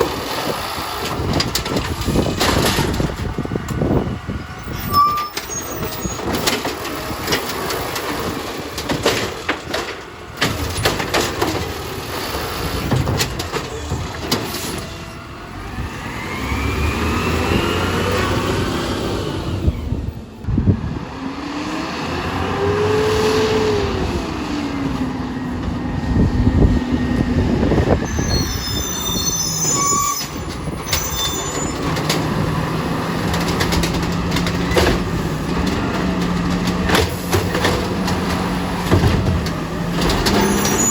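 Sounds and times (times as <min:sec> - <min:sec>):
garbage truck engine rumble: 0:00.0 - 0:40.9
squealing tones: 0:04.6 - 0:06.4, 0:28.0 - 0:32.0, 0:40.2 - 0:40.9.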